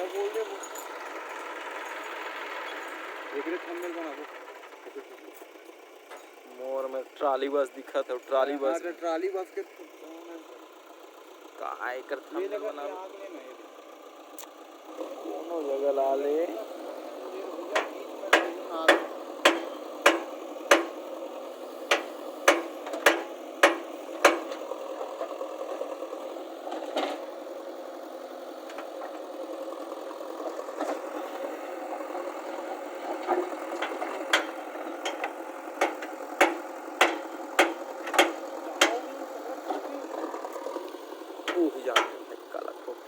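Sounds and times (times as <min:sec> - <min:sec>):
engine running: 0:00.0 - 0:43.0
sharp knocks: 0:17.8 - 0:21.0, 0:21.9 - 0:24.6, 0:33.8 - 0:39.0.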